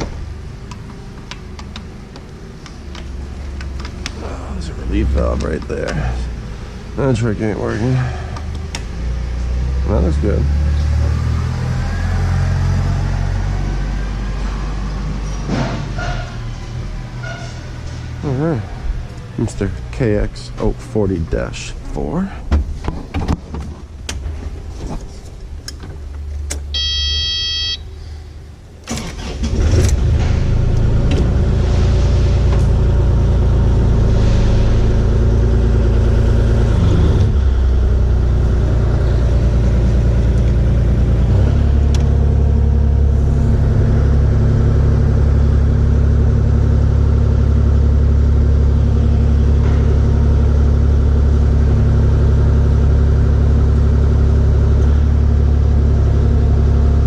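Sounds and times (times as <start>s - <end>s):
diesel engine running: 0.0s - 22.4s, 25.6s - 57.0s
electronic beep: 26.8s - 27.8s.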